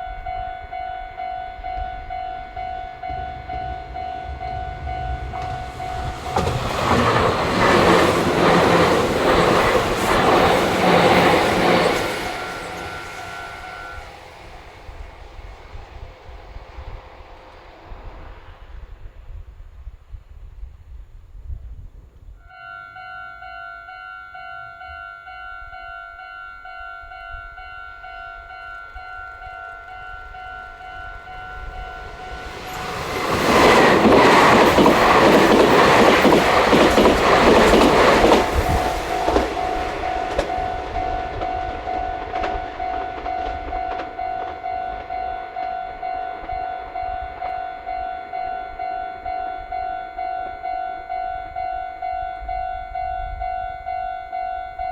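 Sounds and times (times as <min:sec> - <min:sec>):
level-crossing warning bell: 0:00.0 - 0:17.2, 0:22.4 - 0:54.9
train passing: 0:00.0 - 0:21.6, 0:22.4 - 0:54.9
wheels clattering over rail joints: 0:03.1 - 0:16.0, 0:28.2 - 0:47.6.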